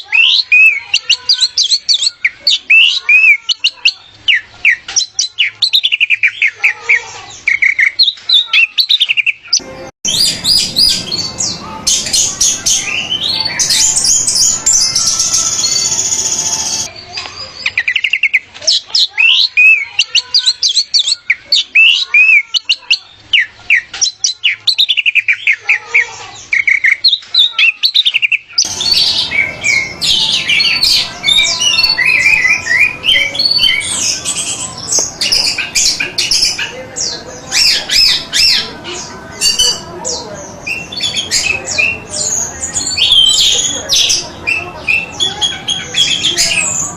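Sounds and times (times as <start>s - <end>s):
thrush singing whistled notes: 7.5s - 16.9s, 27.9s - 36.6s.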